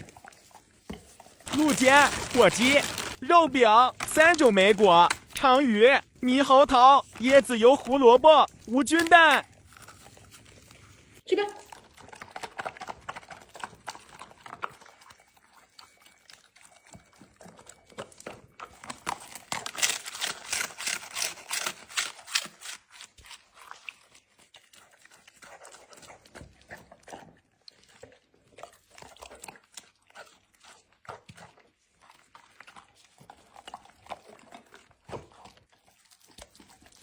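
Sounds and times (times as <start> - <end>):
dog crunching food: 0.0 - 37.0.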